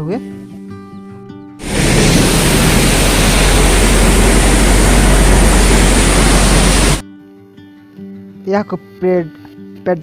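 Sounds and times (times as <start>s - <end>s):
thresher running: 1.6s - 7.0s.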